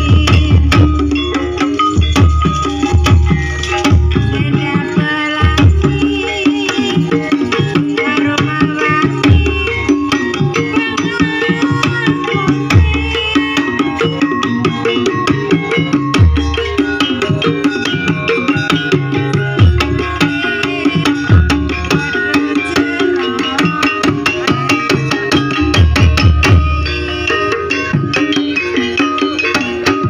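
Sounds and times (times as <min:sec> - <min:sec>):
hand drums beating: 0:00.0 - 0:30.0
ringing metal percussion melody: 0:00.0 - 0:30.0.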